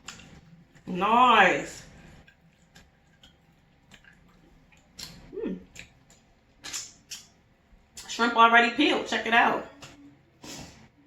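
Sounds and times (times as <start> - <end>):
chewing food: 0.0 - 0.9, 1.8 - 8.0
wet mouth clicks: 2.6 - 7.3
person humming: 5.3 - 5.6.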